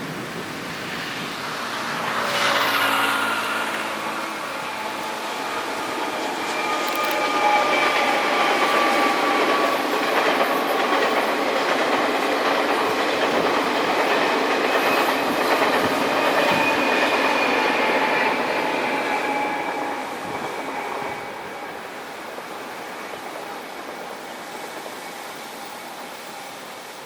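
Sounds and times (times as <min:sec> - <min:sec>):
train wheels rattling on track: 0:00.0 - 0:27.0
faint high whining tones: 0:00.9 - 0:09.9.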